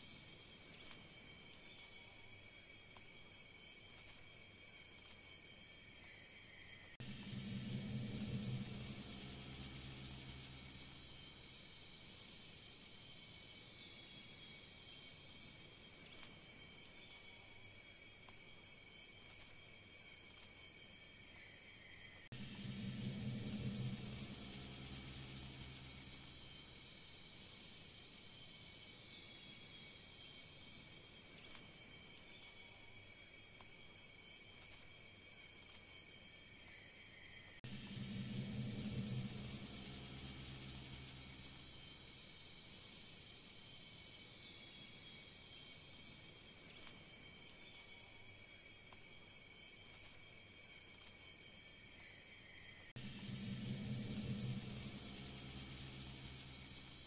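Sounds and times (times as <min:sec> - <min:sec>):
low droning note: 0:07.0 - 0:11.1, 0:22.3 - 0:26.4, 0:37.6 - 0:41.8, 0:53.0 - 0:57.0
steady high-pitched tones: 0:07.0 - 0:11.4, 0:22.3 - 0:26.8, 0:37.6 - 0:42.1, 0:53.0 - 0:57.0.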